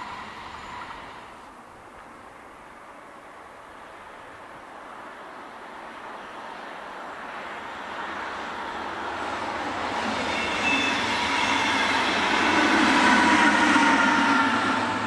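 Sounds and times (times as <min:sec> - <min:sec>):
wheel squeal: 0:00.0 - 0:01.3, 0:10.0 - 0:14.7
electric train rumbling past: 0:00.0 - 0:15.0.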